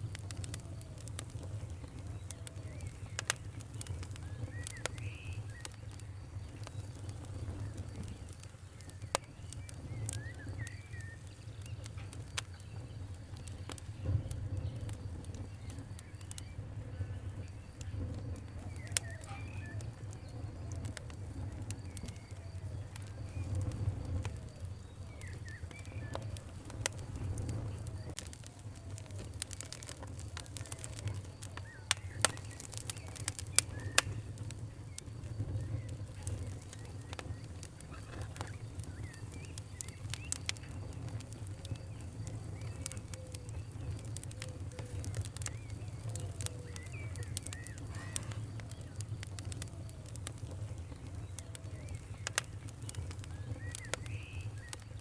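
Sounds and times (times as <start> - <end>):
birds calling faintly: 0.0 - 55.0
fire crackling and popping: 0.0 - 55.0.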